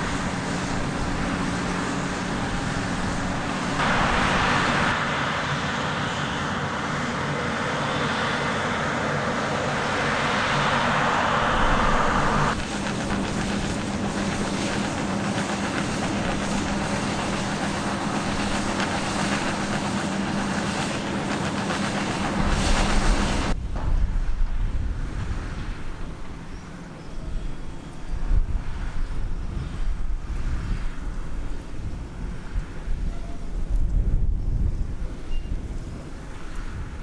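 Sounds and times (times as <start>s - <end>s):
diesel harvest machinery running: 0.0s - 26.1s.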